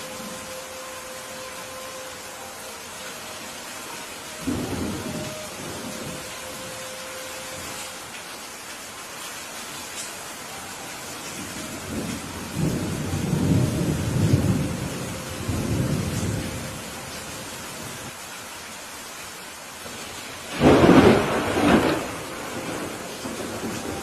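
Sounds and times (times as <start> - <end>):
steady rain: 0.0 - 24.0
rolling thunder: 20.5 - 24.0.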